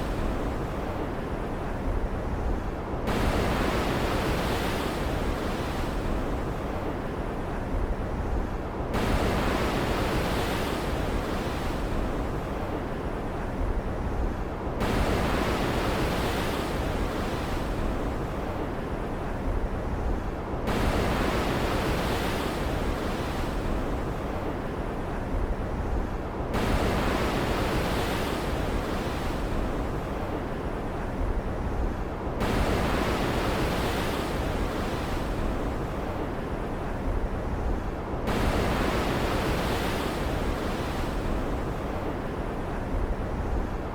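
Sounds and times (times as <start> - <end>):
ocean surf: 9.0 - 43.9.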